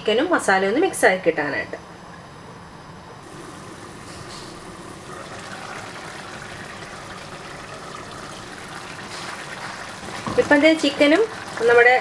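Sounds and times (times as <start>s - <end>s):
gravy simmering in a pan: 3.2s - 12.0s.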